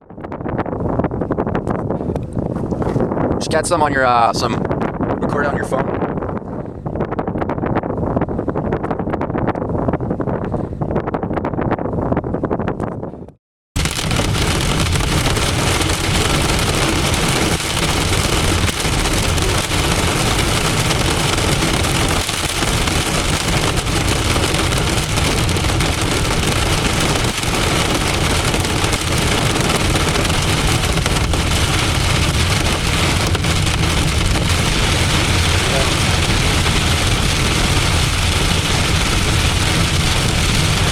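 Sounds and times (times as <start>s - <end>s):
heavy rain beating on a vehicle: 13.8s - 40.9s.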